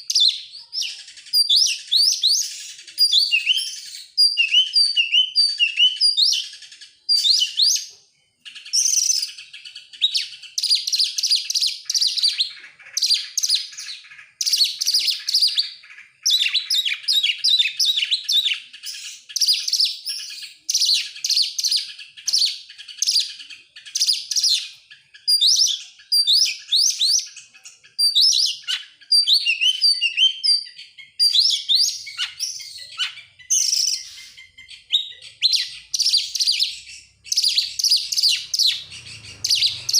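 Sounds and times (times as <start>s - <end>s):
songbird singing whistles and chatter: 0.0s - 39.9s.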